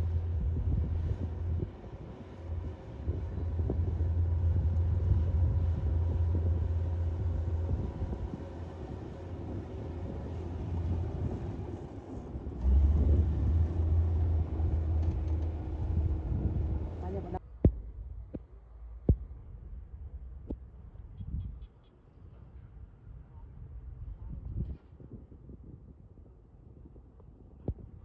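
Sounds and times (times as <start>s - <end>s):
bulldozer diesel engine rumbling: 0.0s - 17.4s.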